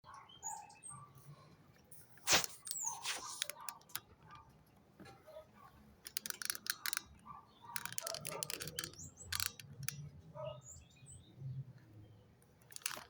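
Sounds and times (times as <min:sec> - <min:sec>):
small birds chirping: 0:02.2 - 0:04.0, 0:06.1 - 0:13.0
quick sharp clicks and taps: 0:02.2 - 0:04.2.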